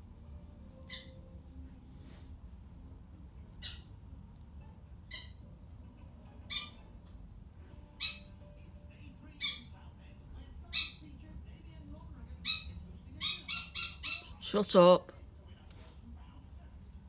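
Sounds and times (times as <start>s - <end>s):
pet bird squawking: 0.8s - 1.2s, 3.6s - 4.0s, 5.1s - 5.5s, 6.4s - 6.9s, 7.9s - 8.4s, 9.3s - 9.8s, 10.7s - 11.0s, 12.4s - 14.4s.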